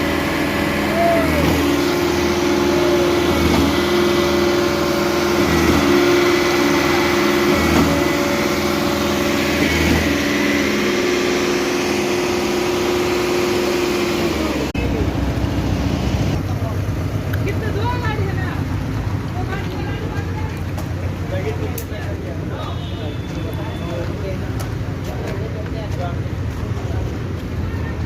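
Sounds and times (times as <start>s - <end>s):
concrete pump engine running: 0.0s - 28.0s.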